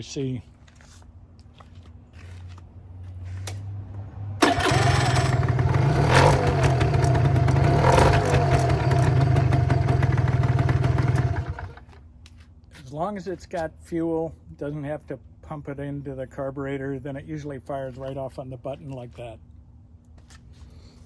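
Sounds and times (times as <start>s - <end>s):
electric starter cranking: 4.4s - 11.9s
scooter engine running: 4.4s - 12.0s.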